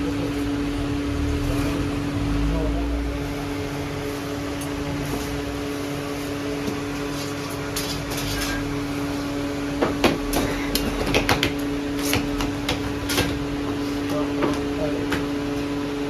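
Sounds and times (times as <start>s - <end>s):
sharp knocks and clatters: 9.8s - 15.4s.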